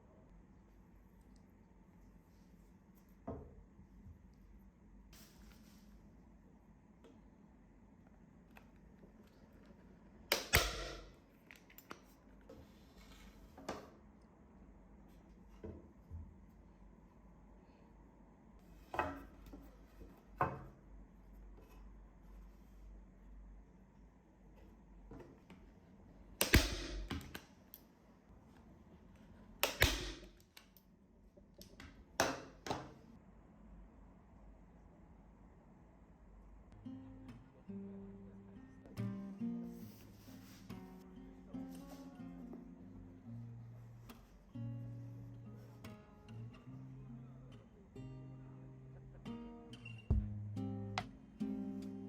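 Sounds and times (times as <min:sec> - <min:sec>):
staple gun snaps: 0:10.3 - 0:11.1, 0:26.4 - 0:27.4, 0:29.6 - 0:30.8
small clicks and handling noise: 0:11.4 - 0:12.6.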